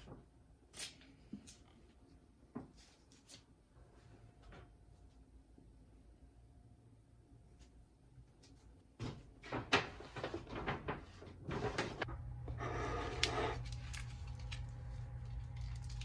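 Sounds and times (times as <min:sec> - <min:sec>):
steady low hum: 0:11.5 - 0:16.0.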